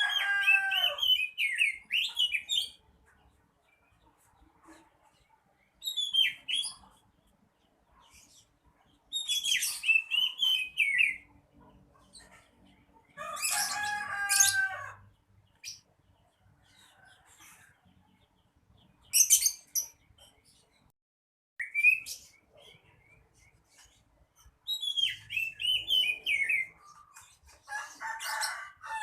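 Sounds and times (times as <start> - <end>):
bird singing whistled phrases: 21.6 - 22.1, 24.7 - 26.7.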